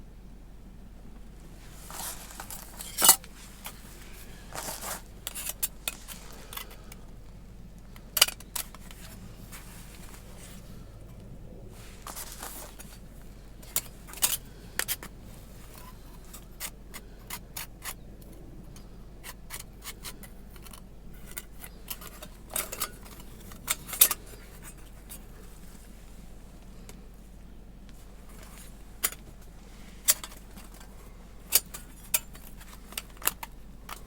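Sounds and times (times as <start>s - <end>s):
metal plates clicking and scraping: 1.8s - 11.2s, 11.8s - 25.4s.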